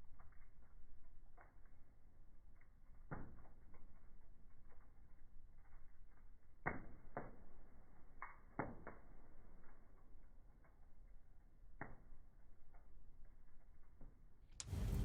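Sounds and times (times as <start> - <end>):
wood fire crackling: 0.0 - 15.0
sharp pops of fire: 2.9 - 4.0, 6.6 - 10.1, 14.6 - 15.0.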